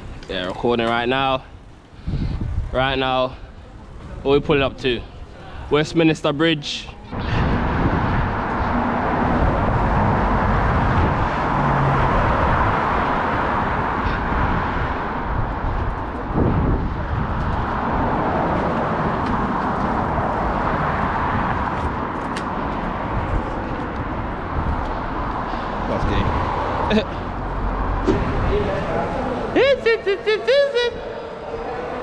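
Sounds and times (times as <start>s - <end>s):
bicycle road noise: 0.0s - 32.0s
wind rushing: 2.0s - 2.8s, 7.1s - 29.9s
motor traffic: 6.9s - 32.0s.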